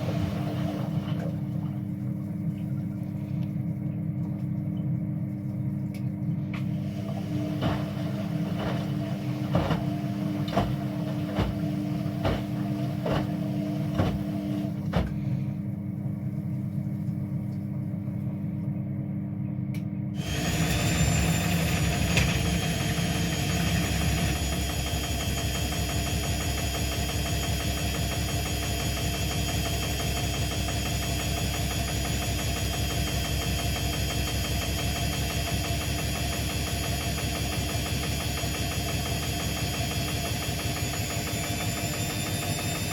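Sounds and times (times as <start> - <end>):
washing machine hum: 0.0 - 42.9
washing machine spinning: 0.0 - 42.9
washing machine drum knocking: 7.3 - 15.3, 20.7 - 42.9.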